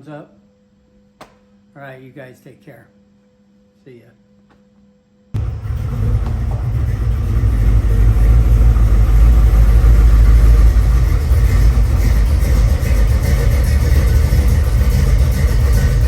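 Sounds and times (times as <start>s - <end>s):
vehicle engine rumbling: 5.4s - 16.0s.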